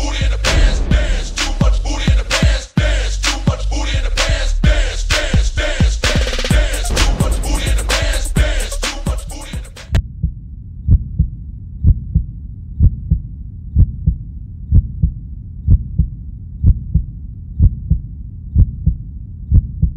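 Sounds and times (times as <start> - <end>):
music: 0.0 - 10.0
heartbeat thumps: 0.4 - 3.6, 4.6 - 19.9.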